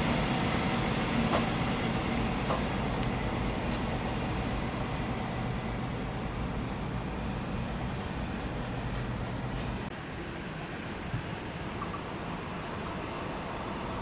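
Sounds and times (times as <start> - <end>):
high wheel squeal: 0.0 - 4.4
train rumbling: 0.0 - 14.0.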